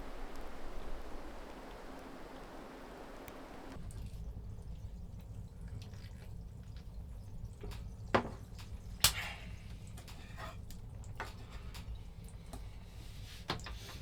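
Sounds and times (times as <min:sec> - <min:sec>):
low steady hum: 0:00.0 - 0:13.2
small clicks and knocks: 0:10.0 - 0:12.7.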